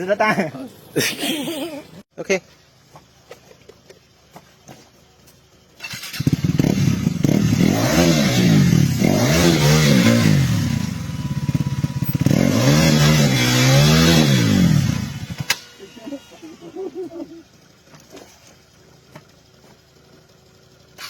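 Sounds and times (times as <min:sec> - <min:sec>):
motorcycle engine revving: 0:05.7 - 0:18.4.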